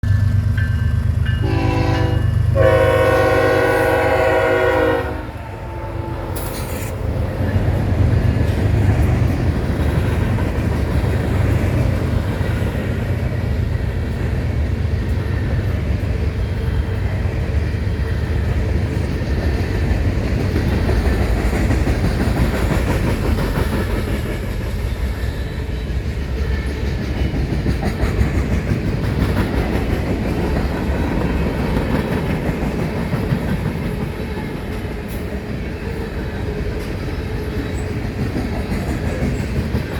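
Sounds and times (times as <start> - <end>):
train rumbling past: 0.0 - 39.9
locomotive air horn blast: 1.4 - 7.0.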